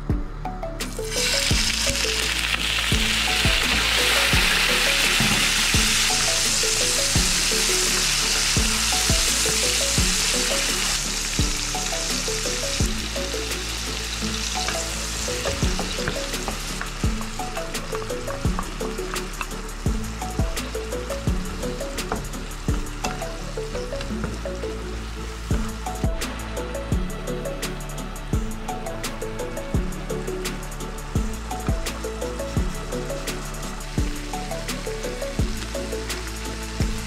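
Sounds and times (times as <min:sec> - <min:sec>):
background music with beat: 0:00.0 - 0:37.0
tomatoes sizzling in hot oil: 0:01.0 - 0:24.1.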